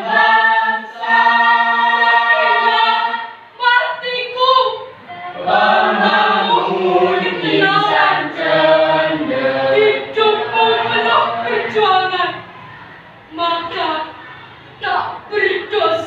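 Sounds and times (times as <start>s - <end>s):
choir singing: 0.0s - 3.6s, 5.0s - 12.4s.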